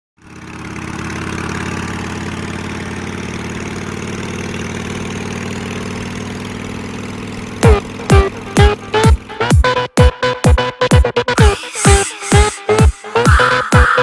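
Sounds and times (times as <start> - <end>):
motorcycle engine idling: 0.2 - 10.8
electronic kick drum: 7.6 - 14.0.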